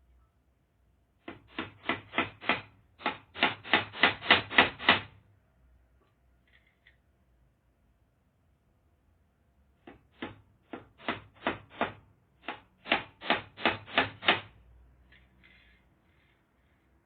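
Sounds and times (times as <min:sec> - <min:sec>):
hammer driving nails: 0:01.2 - 0:05.2, 0:09.8 - 0:14.6.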